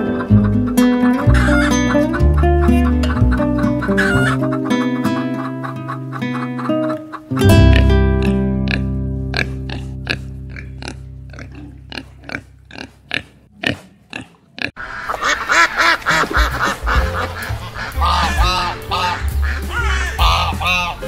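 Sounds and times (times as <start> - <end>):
ducks quacking: 0.0 - 21.0
music chord: 7.4 - 11.3, 16.9 - 20.7
piglets grunting: 7.5 - 21.0.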